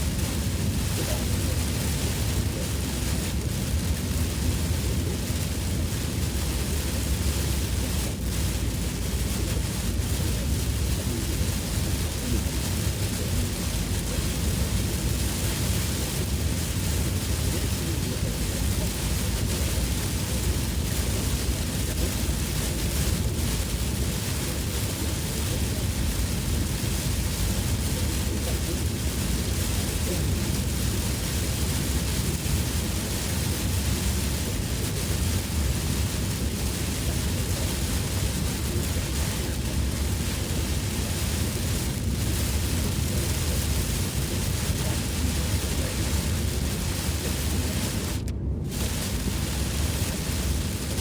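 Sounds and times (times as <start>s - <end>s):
heavy rain on car: 0.0s - 51.0s
low rumble: 38.1s - 51.0s.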